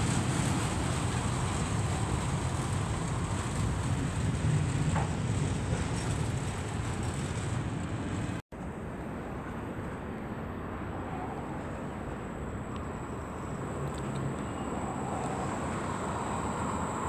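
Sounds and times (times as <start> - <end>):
train wheels rumbling on rails: 0.0 - 8.4, 12.9 - 17.0
steady background noise: 0.0 - 17.0.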